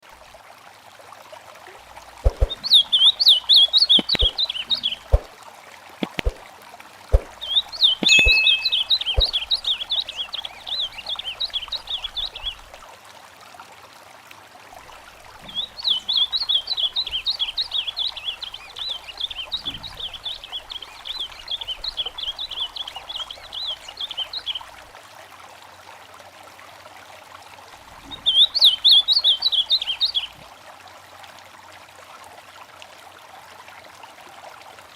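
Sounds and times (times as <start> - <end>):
trickling stream: 0.0 - 34.9
songbird singing: 2.2 - 5.3, 7.1 - 12.6, 15.4 - 24.7, 28.1 - 30.3
sharp clicks: 6.0 - 6.4.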